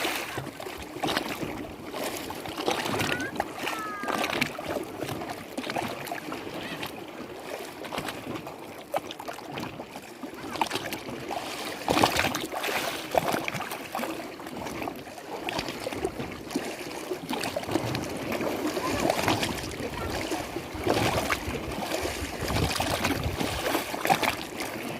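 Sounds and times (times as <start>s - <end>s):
loud water splash: 0.0s - 1.4s, 2.0s - 6.9s, 17.3s - 24.7s
lake water lapping: 0.0s - 24.9s.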